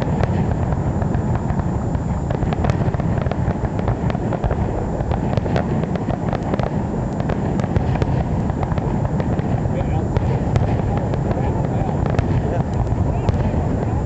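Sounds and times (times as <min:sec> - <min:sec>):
fireworks crackling and popping: 0:00.0 - 0:14.0
low rumble: 0:00.0 - 0:14.0.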